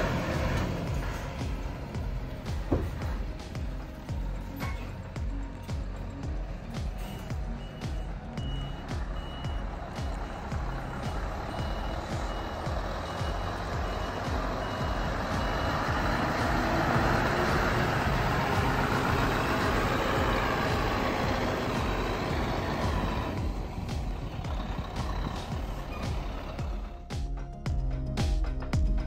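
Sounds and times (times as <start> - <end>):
truck diesel engine running: 0.0 - 27.4
reversing alarm beeps: 7.0 - 16.4.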